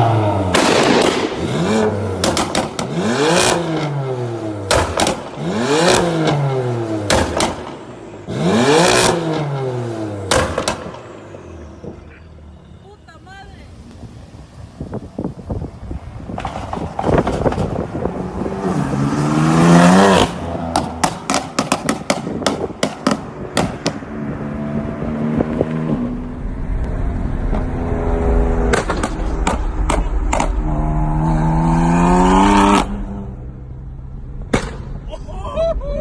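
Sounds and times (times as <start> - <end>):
car engine revving: 0.0 - 12.6, 13.8 - 36.0
exhaust pops and crackles: 2.2 - 3.9, 4.7 - 6.4, 7.0 - 7.9, 10.3 - 11.0, 16.2 - 18.0, 20.2 - 24.0, 28.6 - 30.8, 34.4 - 35.2.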